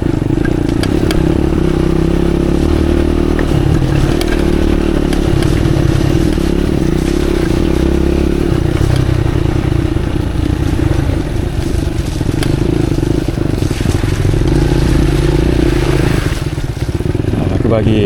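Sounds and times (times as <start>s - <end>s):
motorcycle engine at low revs: 0.0s - 18.0s.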